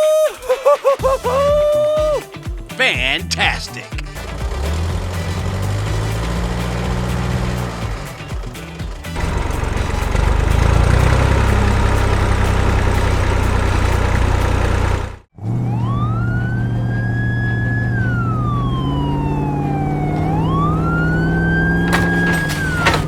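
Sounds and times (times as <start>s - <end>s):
vehicle engine running: 4.2s - 15.2s, 21.8s - 23.0s
wailing siren: 15.6s - 21.5s.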